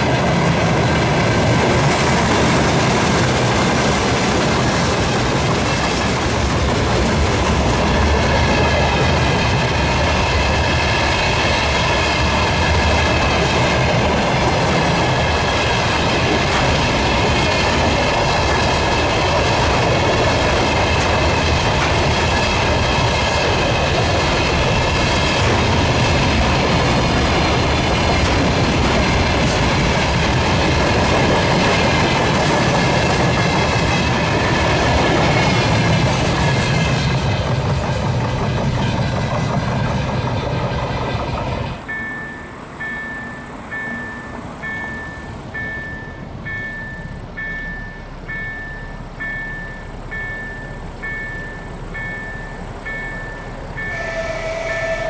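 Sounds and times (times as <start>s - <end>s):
railway wagons rumbling past: 0.0s - 55.0s
wheels clattering over rail joints: 0.0s - 55.0s
faint high ringing from wheels: 41.8s - 55.0s.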